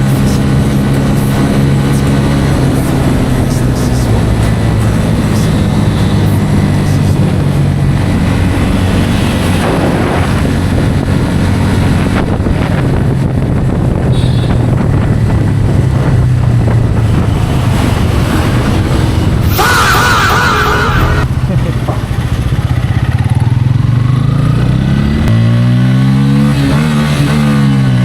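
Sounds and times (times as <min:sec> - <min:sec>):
motorcycle engine cruising: 0:00.0 - 0:28.0
wind on microphone: 0:00.4 - 0:19.6.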